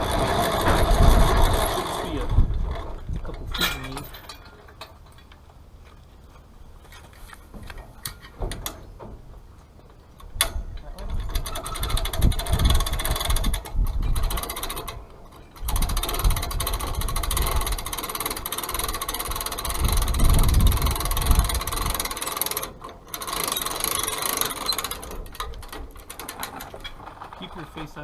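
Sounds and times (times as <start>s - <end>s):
winch clattering: 0.0s - 5.6s, 10.2s - 28.0s.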